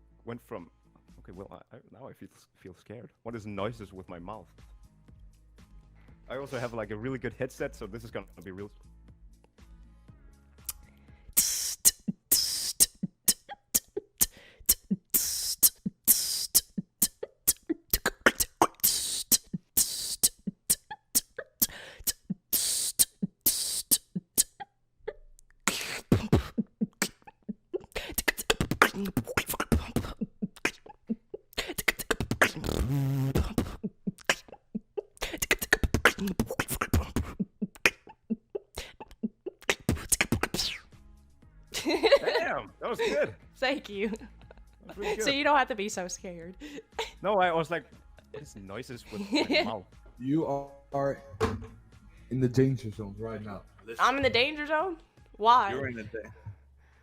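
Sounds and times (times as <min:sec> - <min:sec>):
person beatboxing: 0:11.4 - 0:24.6, 0:25.7 - 0:40.9.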